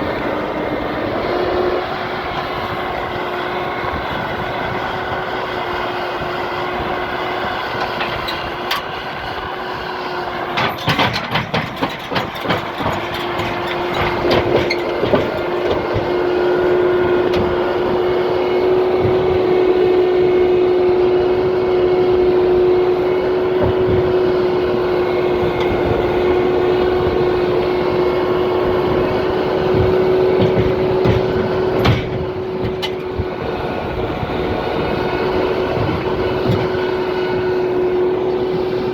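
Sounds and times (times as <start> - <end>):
vehicle engine and road noise: 0.0 - 38.9
knocks: 29.8 - 33.1.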